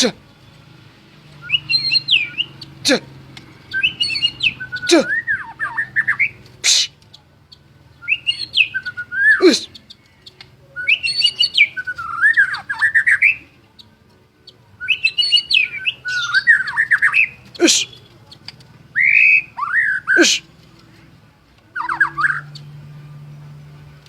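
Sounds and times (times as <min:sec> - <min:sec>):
bird singing whistled phrases: 0:01.4 - 0:02.8, 0:03.7 - 0:07.0, 0:07.9 - 0:10.0, 0:10.7 - 0:13.5, 0:14.8 - 0:20.5, 0:21.7 - 0:22.7.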